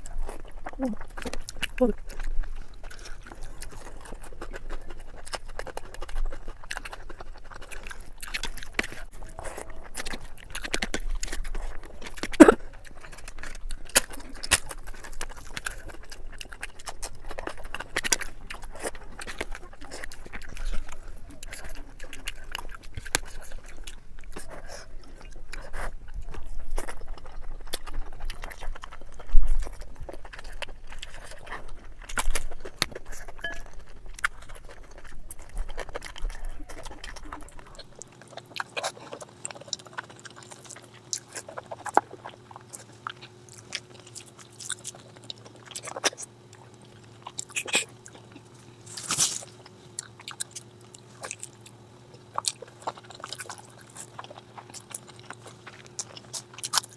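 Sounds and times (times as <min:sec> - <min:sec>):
chewing and crunching: 0:00.0 - 0:56.9.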